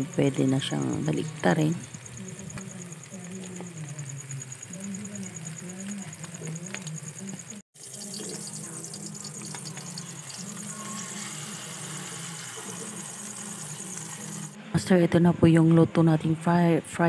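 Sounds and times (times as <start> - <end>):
omelette sizzling in a frying pan: 0.5 - 14.6.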